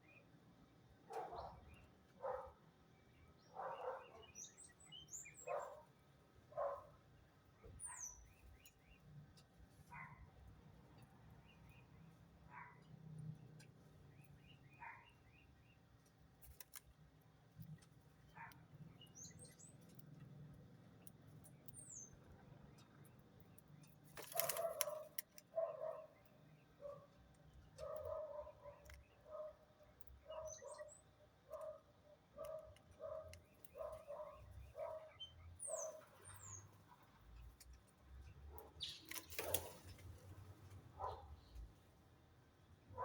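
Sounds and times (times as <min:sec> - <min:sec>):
bird calls: 0:03.4 - 0:05.8, 0:07.6 - 0:09.0, 0:23.8 - 0:37.0, 0:38.2 - 0:40.1.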